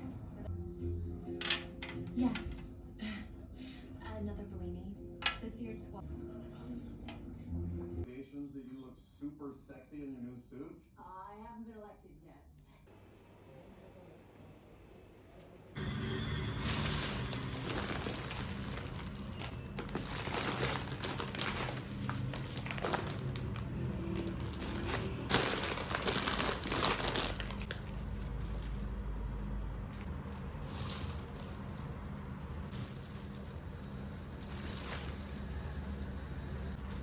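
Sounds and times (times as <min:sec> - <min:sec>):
plastic packaging crinkling: 0:16.4 - 0:29.1, 0:29.9 - 0:35.8, 0:36.7 - 0:37.0.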